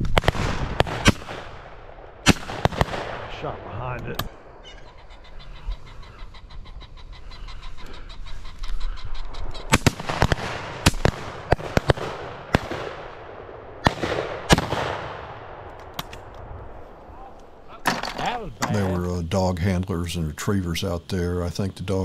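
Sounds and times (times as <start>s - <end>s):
shotgun shots echoing: 0.0s - 4.8s, 9.6s - 16.8s.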